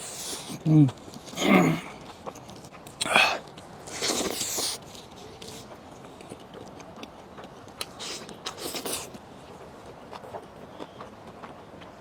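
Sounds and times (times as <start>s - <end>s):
smacking or slurping: 0.0s - 5.7s, 7.8s - 9.2s
person chewing with mouth clicks: 0.0s - 9.2s.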